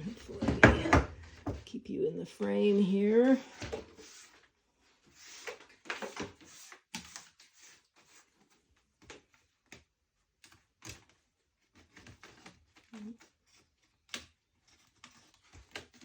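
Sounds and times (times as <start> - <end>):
hands handling wooden chair: 0.0 - 1.6.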